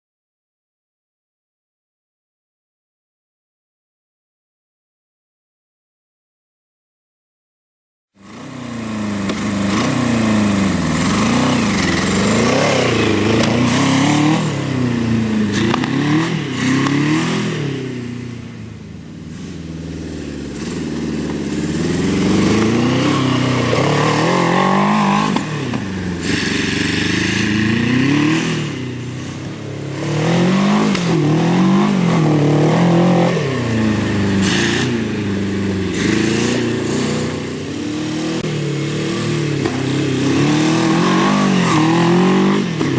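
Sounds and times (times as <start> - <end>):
motorcycle engine revving: 8.2 - 42.9.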